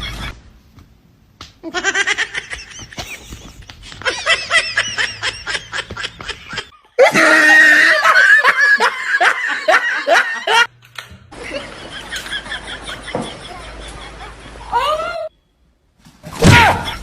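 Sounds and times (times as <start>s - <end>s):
person laughing: 1.6s - 10.7s, 11.4s - 15.2s.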